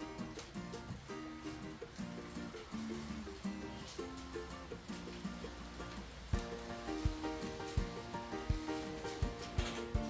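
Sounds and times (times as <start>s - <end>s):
plucked-string tune: 0.0s - 10.0s.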